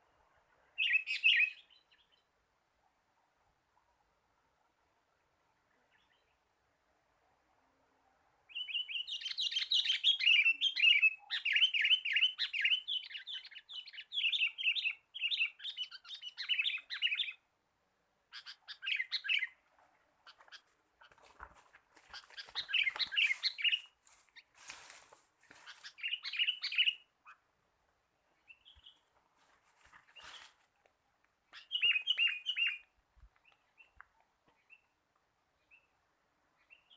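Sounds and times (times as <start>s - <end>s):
rustling noise: 19.7s - 26.0s, 29.0s - 30.8s
birds chattering calls: 22.1s - 24.5s.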